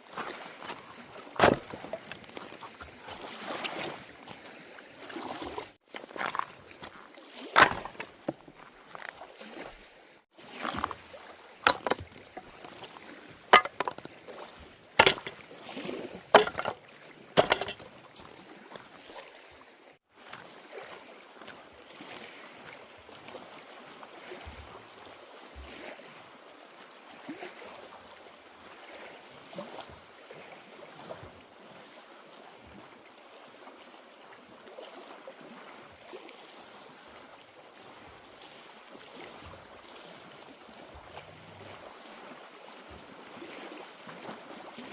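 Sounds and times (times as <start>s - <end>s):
sharp knocks on kayak hull: 13.6s - 14.0s
water washing along boat: 34.4s - 44.9s.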